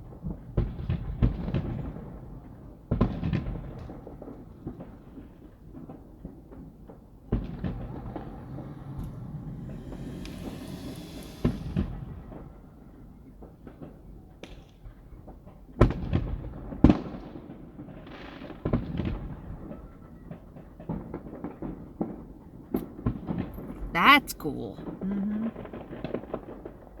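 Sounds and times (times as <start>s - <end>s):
fireworks hissing crackle: 7.8s - 12.2s
firework pops and crackles: 13.6s - 19.4s.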